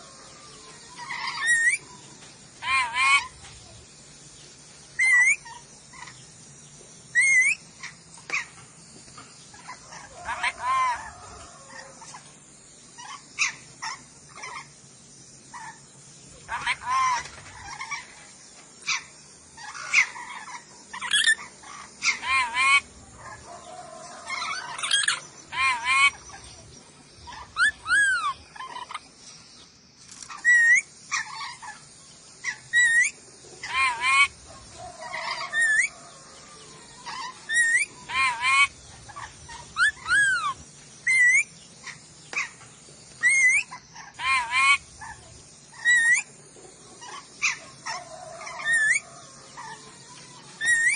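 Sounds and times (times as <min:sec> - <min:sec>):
parrot calling: 0:00.0 - 0:01.9, 0:02.6 - 0:03.4, 0:05.0 - 0:06.2, 0:07.1 - 0:08.5, 0:09.5 - 0:12.2, 0:13.0 - 0:14.7, 0:16.4 - 0:18.2, 0:18.9 - 0:26.6, 0:27.2 - 0:29.1, 0:30.3 - 0:31.8, 0:32.4 - 0:42.6, 0:43.2 - 0:46.4, 0:47.0 - 0:50.9
parrot screeching: 0:01.0 - 0:01.8, 0:02.6 - 0:03.3, 0:09.9 - 0:11.9, 0:16.5 - 0:18.0, 0:19.6 - 0:23.4, 0:24.1 - 0:26.2, 0:27.3 - 0:29.0, 0:32.4 - 0:34.3, 0:35.0 - 0:36.1, 0:37.0 - 0:41.5, 0:43.2 - 0:45.2, 0:45.8 - 0:46.3, 0:47.0 - 0:49.8, 0:50.6 - 0:50.9.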